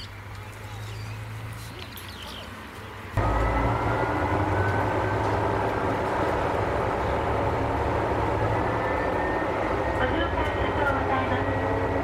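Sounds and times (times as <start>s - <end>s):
diesel railcar engine drone: 1.0s - 12.0s
thin rising whine: 3.2s - 12.0s.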